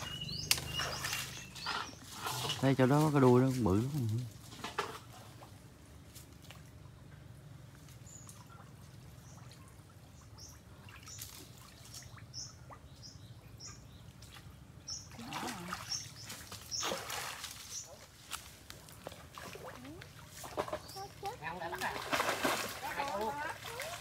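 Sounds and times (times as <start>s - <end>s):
small bird chirping: 0.0s - 2.2s, 9.2s - 17.0s, 20.5s - 21.6s
low steady hum: 0.0s - 24.0s.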